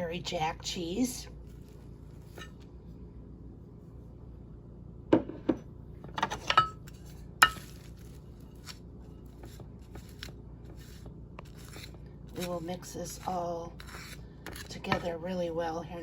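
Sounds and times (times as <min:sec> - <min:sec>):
kitchenware clinking against bowl: 0:06.3 - 0:07.9.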